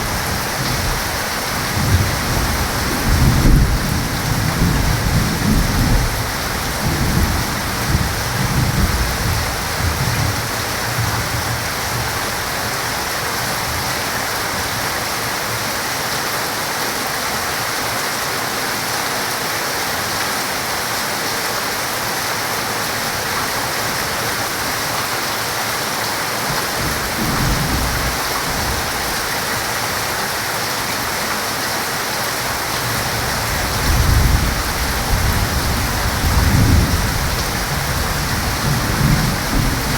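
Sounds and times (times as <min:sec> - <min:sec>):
thunder rumbling: 0:00.0 - 0:12.4, 0:26.5 - 0:29.7, 0:32.6 - 0:39.9
heavy rain falling: 0:00.0 - 0:39.9.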